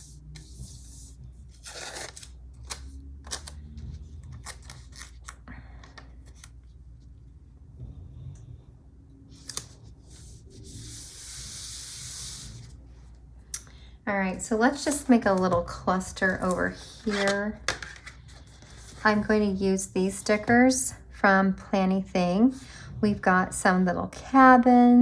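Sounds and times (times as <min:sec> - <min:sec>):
paper rustling: 0:16.2 - 0:19.5.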